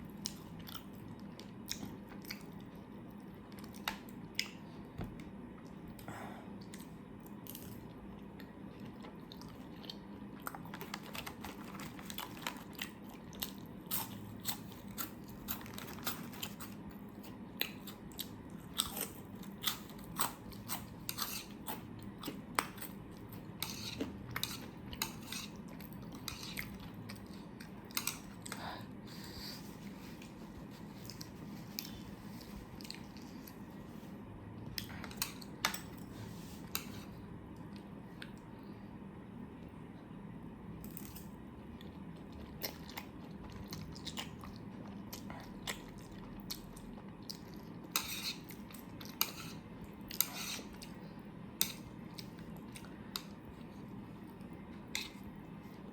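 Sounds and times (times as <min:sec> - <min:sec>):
person chewing crunchy food: 0:00.0 - 0:38.4, 0:41.7 - 0:55.9.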